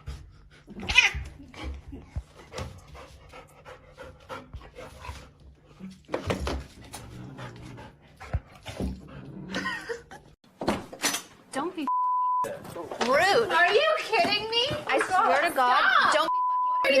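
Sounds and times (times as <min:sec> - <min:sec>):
dog panting: 0:01.5 - 0:05.9, 0:06.9 - 0:09.4.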